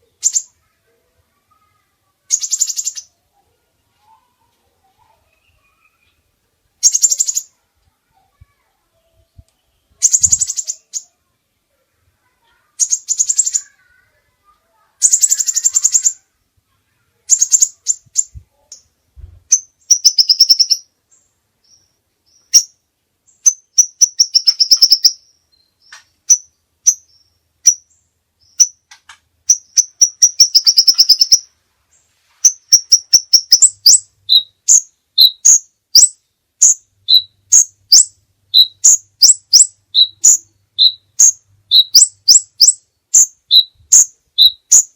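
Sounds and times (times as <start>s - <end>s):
bird sharp chirps: 0.0s - 0.7s, 2.3s - 3.2s, 6.8s - 7.6s, 9.6s - 11.2s, 12.5s - 14.0s, 15.0s - 16.3s, 17.3s - 18.9s, 19.5s - 31.5s, 32.4s - 44.9s.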